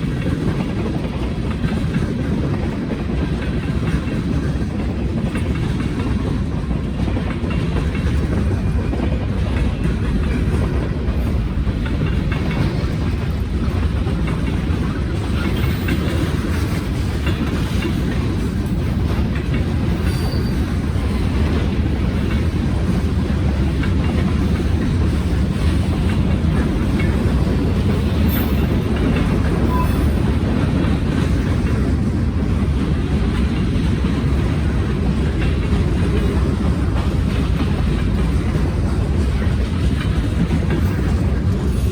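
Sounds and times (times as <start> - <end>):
freight train cars rumbling: 0.0 - 41.9
wheels clattering over rail joints: 0.0 - 41.9.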